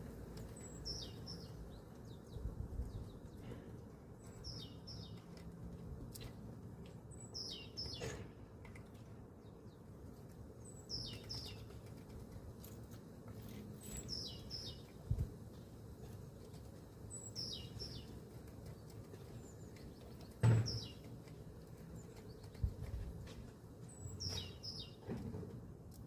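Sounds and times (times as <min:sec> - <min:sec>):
small birds chirping: 0:00.0 - 0:25.2
dull knock: 0:20.4 - 0:20.9
sharp knock: 0:20.4 - 0:20.9.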